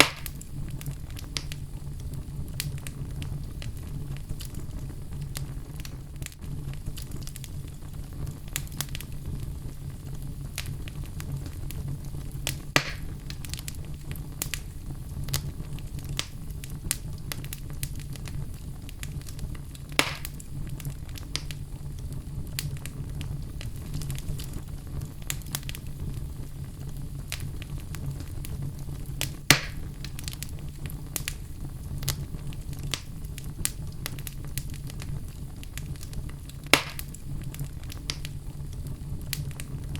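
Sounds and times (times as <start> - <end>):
fire crackling in a fireplace: 0.0 - 39.9
loud pops of fire: 0.0 - 39.9.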